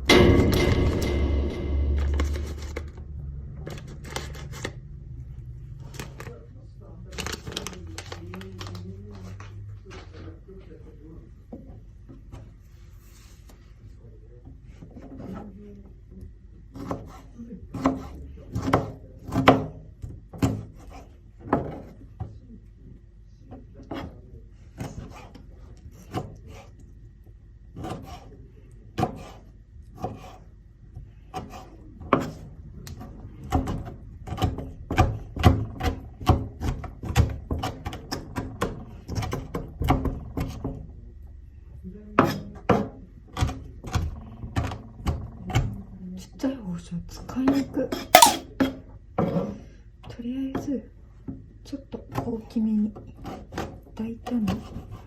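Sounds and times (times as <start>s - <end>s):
knife scraping: 48.2s - 48.4s.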